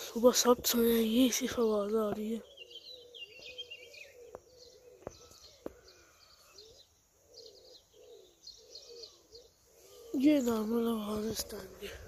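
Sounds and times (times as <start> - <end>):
small birds chirping: 0.0 - 12.0
pigeon cooing: 2.5 - 12.0.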